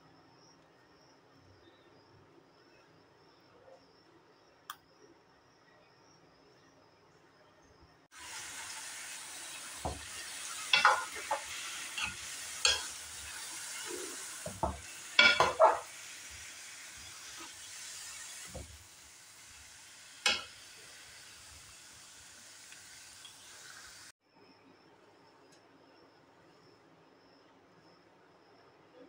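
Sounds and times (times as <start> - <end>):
food sizzling in metal pot: 8.1 - 24.1
spoon knocking and scraping pot: 9.8 - 16.0, 20.2 - 20.5.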